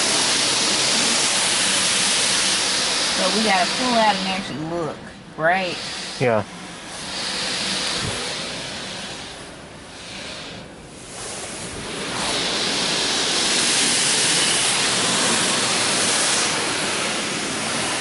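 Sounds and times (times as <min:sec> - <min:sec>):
water jets drumming on car body: 0:00.0 - 0:18.0.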